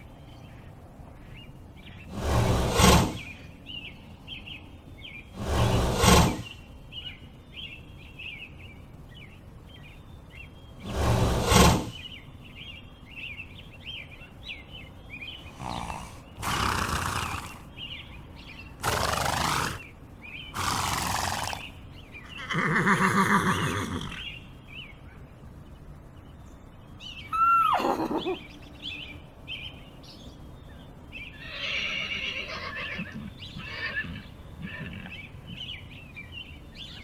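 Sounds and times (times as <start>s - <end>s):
small birds chirping: 0.0s - 37.0s
loud rushing blasts: 2.1s - 3.4s, 5.4s - 6.6s, 10.8s - 12.1s.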